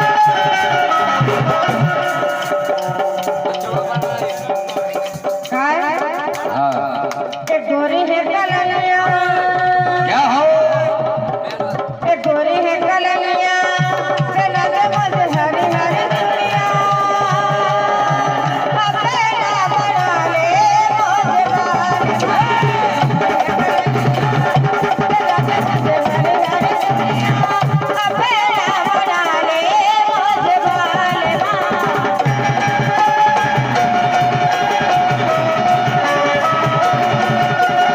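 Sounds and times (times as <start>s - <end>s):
hand drum rhythm: 0.0s - 37.9s
wavering melody line: 32.0s - 37.9s.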